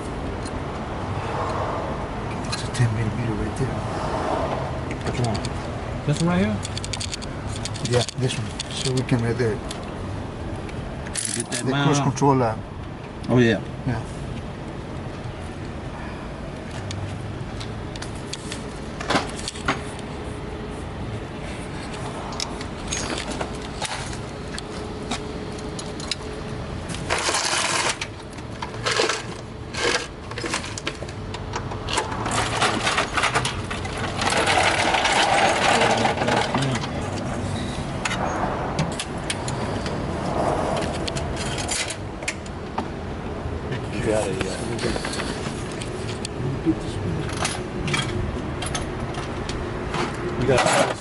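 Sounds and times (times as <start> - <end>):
metal tools clinking and rattling: 6.1 - 9.2, 11.1 - 11.7, 22.8 - 24.2, 27.0 - 31.0, 31.9 - 36.9, 40.9 - 42.4, 49.9 - 51.0.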